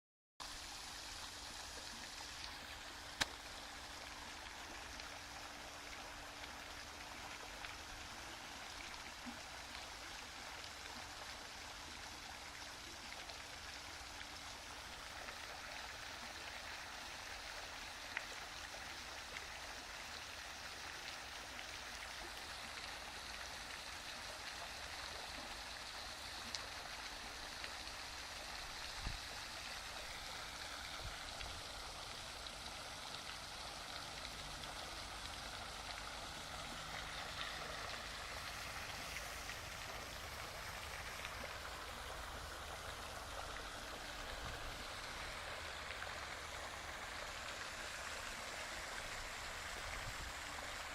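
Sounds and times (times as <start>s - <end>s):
running water rushing: 0.4s - 50.9s.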